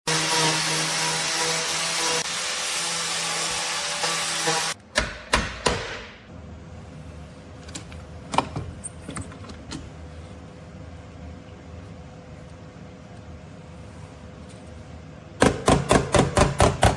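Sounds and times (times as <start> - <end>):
power tool running: 0.1 - 4.8.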